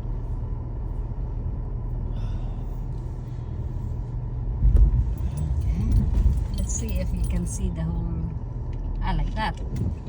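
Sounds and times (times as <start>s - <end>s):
car engine low rumble: 0.0s - 10.0s.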